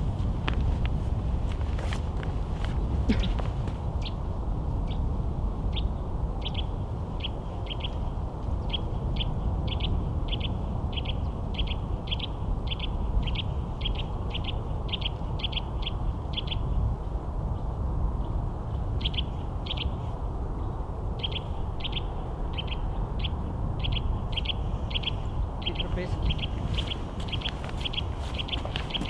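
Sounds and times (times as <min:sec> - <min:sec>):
steady low rumble: 0:00.0 - 0:29.0
small bird high chirps: 0:21.2 - 0:29.0.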